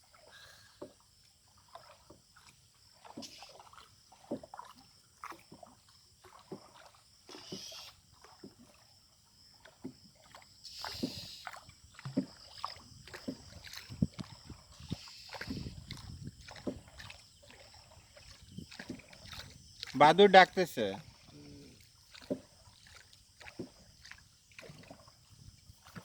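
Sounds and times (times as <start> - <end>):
oar splashes and drips: 0.0 - 26.0
rush of water: 1.6 - 8.8, 9.7 - 26.0.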